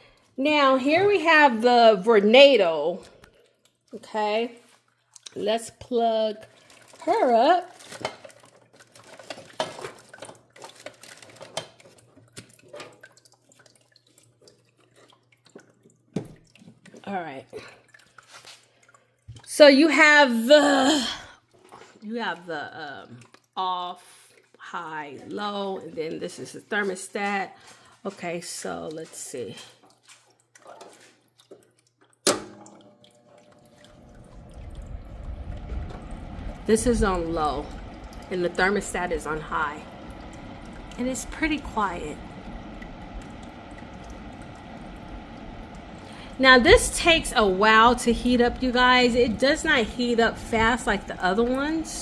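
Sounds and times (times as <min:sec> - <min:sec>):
faint low hum: 0:32.8 - 0:52.0
heater fan rushing air: 0:33.6 - 0:52.0.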